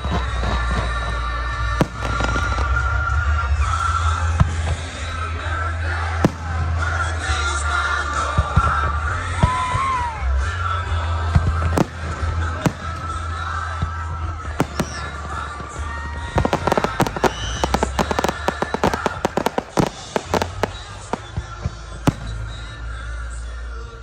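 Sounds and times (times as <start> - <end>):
fireworks bursting: 0.0 - 4.0, 6.2 - 7.8, 11.4 - 23.5
music: 0.0 - 24.0.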